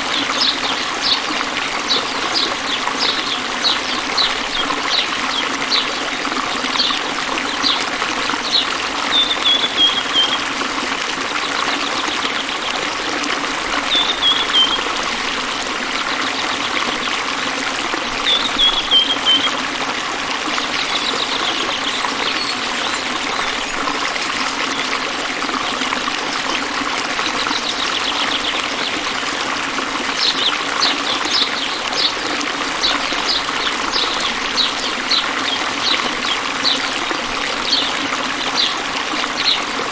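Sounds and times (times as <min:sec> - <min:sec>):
running water flowing: 0:00.0 - 0:39.9
bird calling: 0:08.4 - 0:10.6, 0:13.8 - 0:15.0, 0:18.2 - 0:19.7, 0:20.6 - 0:24.8.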